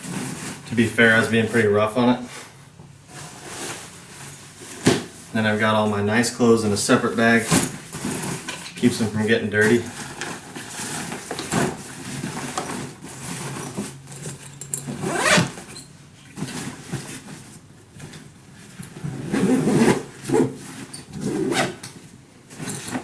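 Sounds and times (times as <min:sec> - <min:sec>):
fabric luggage rustling: 0:07.2 - 0:08.7, 0:09.6 - 0:21.8
zipper being run: 0:15.0 - 0:15.7.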